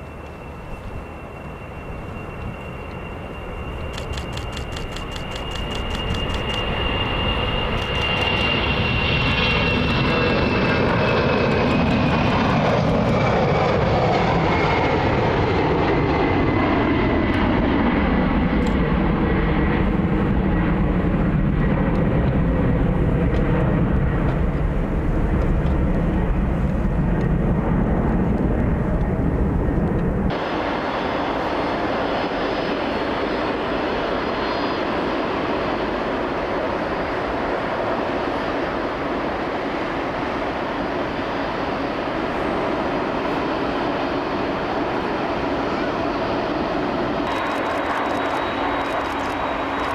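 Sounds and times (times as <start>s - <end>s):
jet engines passing: 0.0s - 49.9s
steady engine noise: 47.2s - 49.9s.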